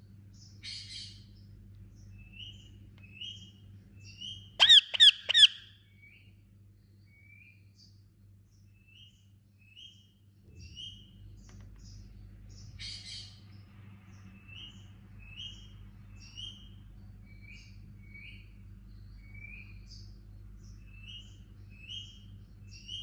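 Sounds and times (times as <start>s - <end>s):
harsh rasping bird call: 4.6s - 5.7s
parakeet chirping: 4.6s - 5.7s.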